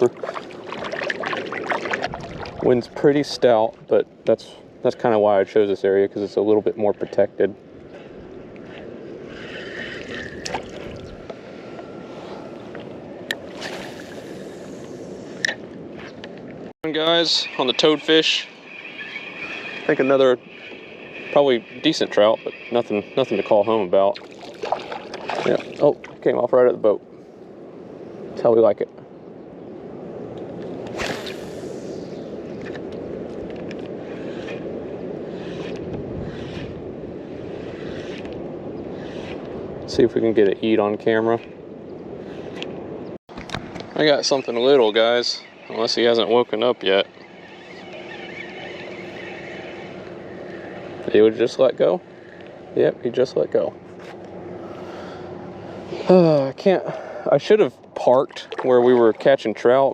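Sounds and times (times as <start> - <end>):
water sloshing against kayak hull: 0.0 - 3.0, 24.2 - 26.2, 58.0 - 59.4
wind: 0.0 - 59.9
short hissing swishes: 30.9 - 32.2.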